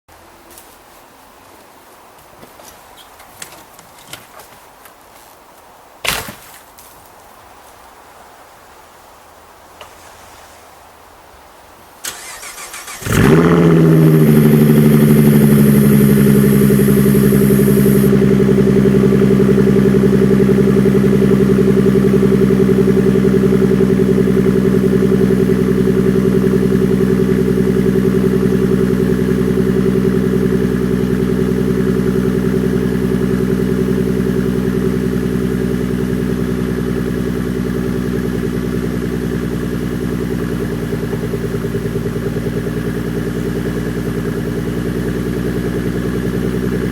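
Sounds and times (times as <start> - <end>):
car engine starting and idling: 12.0 - 46.9.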